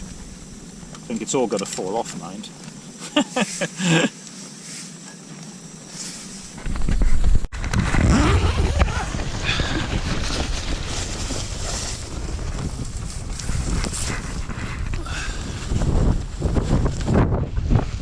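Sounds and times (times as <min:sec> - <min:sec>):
wind buffeting microphone: 0:06.6 - 0:18.0.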